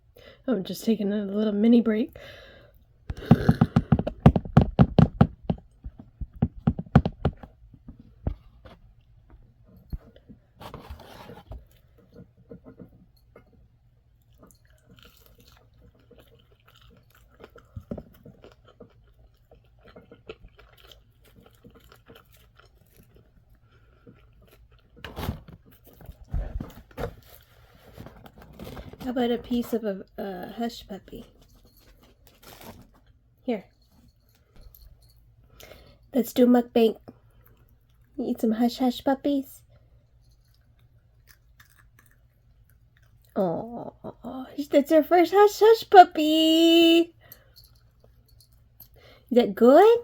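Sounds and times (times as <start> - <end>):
chewing and crunching fried food: 11.6 - 34.6, 37.0 - 44.7, 47.1 - 49.3.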